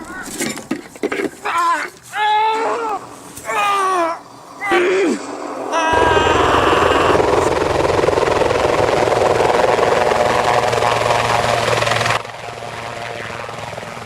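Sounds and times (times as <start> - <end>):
loud fluttering machine noise: 5.3 - 14.0.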